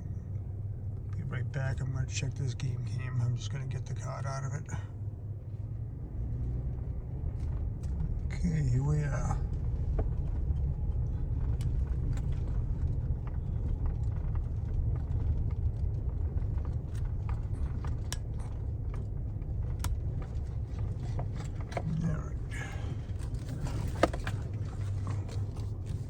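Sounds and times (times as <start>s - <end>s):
pickup truck engine rumbling: 0.0s - 26.0s
light clicks and taps: 9.4s - 22.0s.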